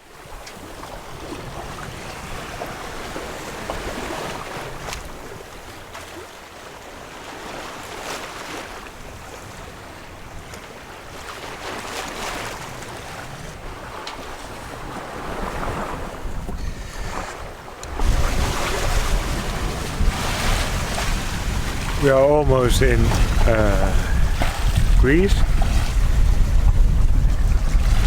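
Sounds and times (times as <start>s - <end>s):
water rushing along hull: 0.0s - 28.0s
wind on microphone: 12.4s - 28.0s.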